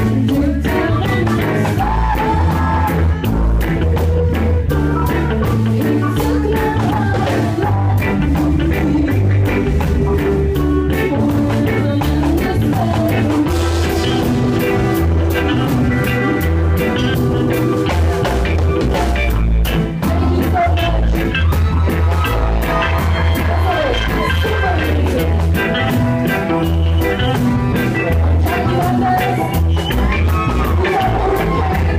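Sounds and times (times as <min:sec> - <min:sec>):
bass line: 0:00.0 - 0:31.9
guitar: 0:00.0 - 0:31.9
live band playing: 0:00.0 - 0:31.9
drum beat: 0:12.8 - 0:31.9.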